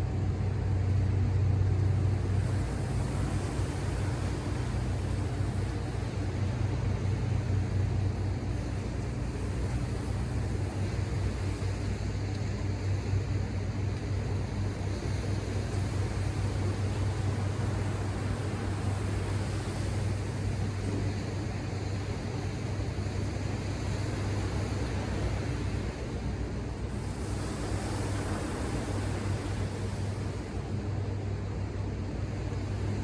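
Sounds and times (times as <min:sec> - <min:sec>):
ocean surf washing: 0:00.0 - 0:33.0.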